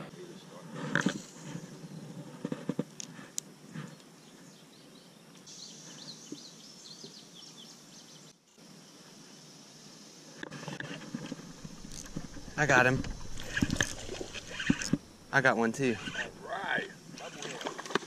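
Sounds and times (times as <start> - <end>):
river ambience: 10.5 - 18.0
small bird chirping: 11.5 - 16.4.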